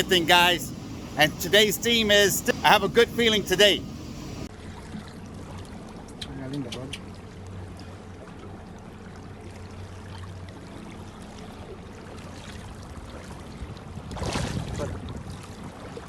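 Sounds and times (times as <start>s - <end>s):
boat engine hum: 0.0s - 4.5s
water rushing: 0.0s - 4.5s.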